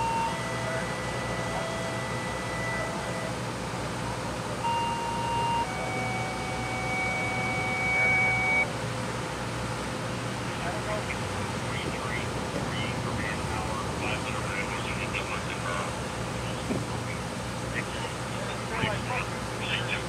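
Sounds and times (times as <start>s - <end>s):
held electronic tones: 0.0s - 3.4s, 4.6s - 8.7s
low engine drone: 0.0s - 20.0s.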